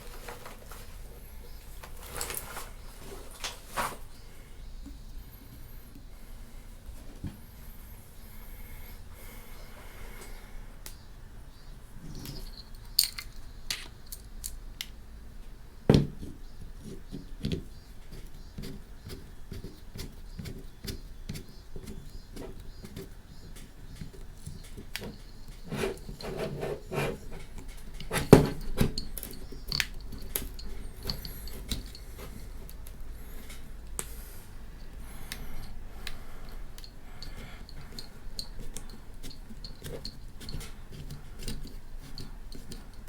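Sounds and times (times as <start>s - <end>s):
small hard parts clicking and knocking: 12.0s - 15.0s, 15.9s - 34.0s, 34.8s - 43.0s.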